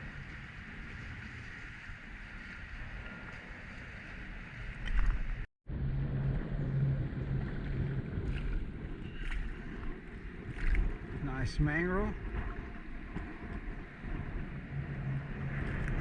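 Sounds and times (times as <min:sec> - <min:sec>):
wind on microphone: 0:00.0 - 0:16.0
water sloshing against boat: 0:07.0 - 0:11.3.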